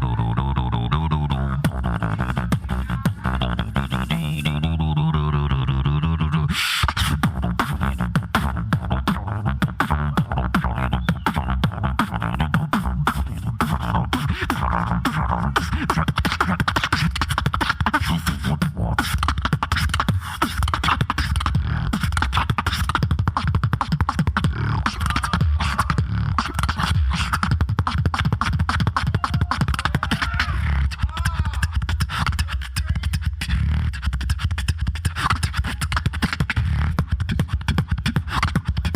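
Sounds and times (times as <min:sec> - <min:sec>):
beatboxing into a microphone: 0:00.0 - 0:38.9.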